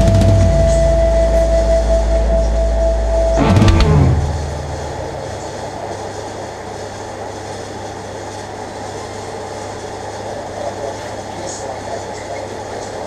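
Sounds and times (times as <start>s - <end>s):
car engine idling: 1.9s - 6.1s.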